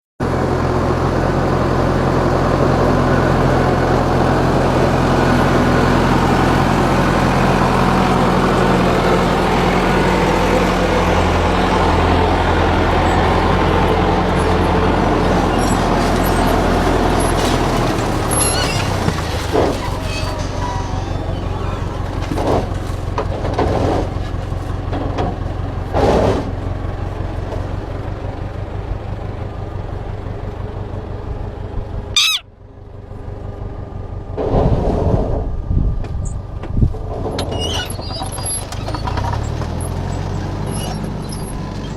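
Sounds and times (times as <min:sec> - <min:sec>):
tractor engine running: 0:00.2 - 0:41.9.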